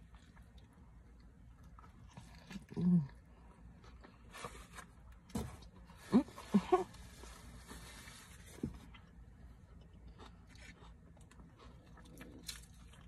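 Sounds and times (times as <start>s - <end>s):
person chewing and biting food: 8.8s - 13.0s.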